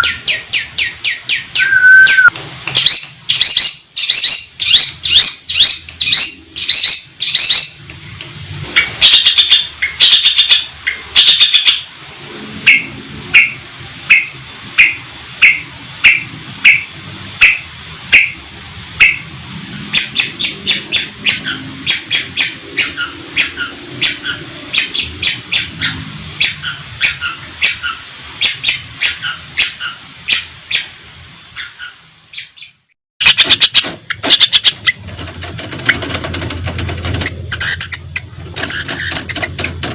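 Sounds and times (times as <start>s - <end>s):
shrike singing sharp calls: 0.0s - 7.8s.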